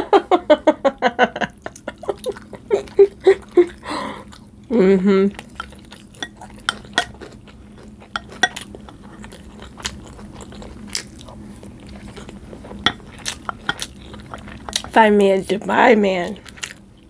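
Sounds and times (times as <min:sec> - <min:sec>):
person chewing: 0:01.7 - 0:04.6, 0:05.3 - 0:14.9, 0:16.4 - 0:17.0.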